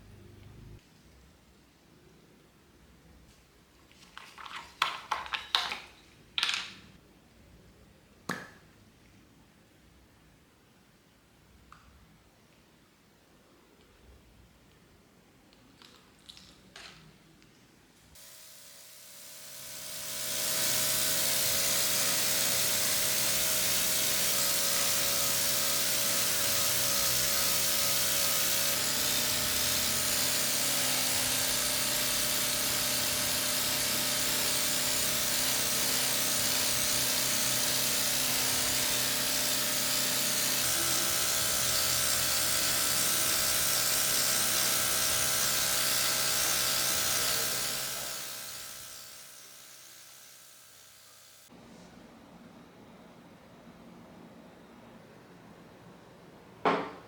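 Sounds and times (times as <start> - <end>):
high-speed power tool whining: 18.2 - 51.5.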